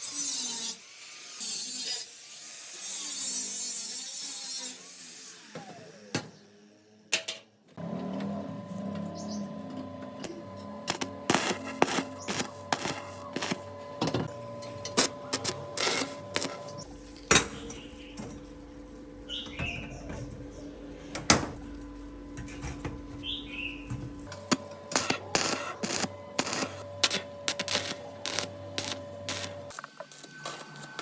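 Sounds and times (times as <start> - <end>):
steady hum: 10.1 - 16.8, 24.3 - 31.0.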